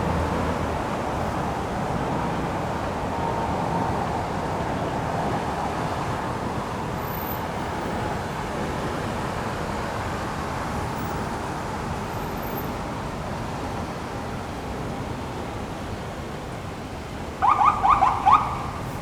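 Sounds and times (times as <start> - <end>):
road traffic rushing past: 17.4 - 19.0.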